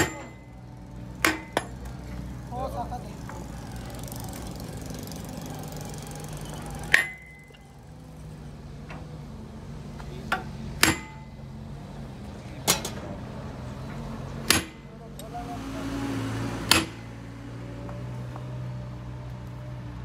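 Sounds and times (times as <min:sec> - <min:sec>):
hammer striking steel: 0:00.0 - 0:00.5, 0:01.2 - 0:01.9, 0:06.9 - 0:07.6, 0:10.3 - 0:11.4, 0:14.4 - 0:14.9, 0:16.6 - 0:17.2.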